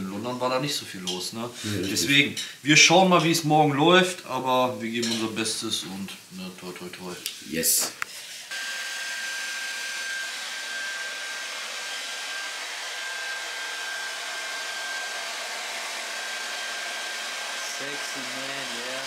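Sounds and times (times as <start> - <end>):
hair dryer running: 8.4 - 19.0.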